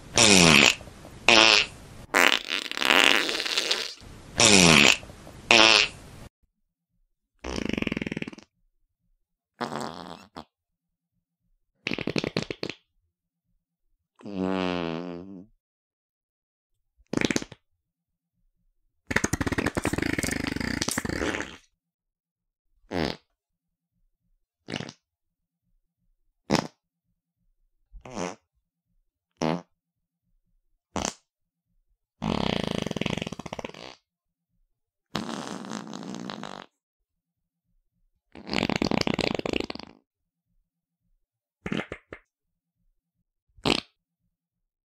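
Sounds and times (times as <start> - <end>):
fart sounds: 0.0 - 6.2, 7.4 - 8.5, 9.6 - 10.6, 11.8 - 12.9, 14.2 - 15.5, 17.0 - 17.6, 19.1 - 21.8, 22.9 - 23.4, 24.6 - 25.0, 26.5 - 26.8, 28.0 - 28.5, 29.3 - 29.8, 30.9 - 31.3, 32.2 - 34.0, 35.1 - 36.8, 38.3 - 40.0, 41.6 - 42.3, 43.6 - 44.0.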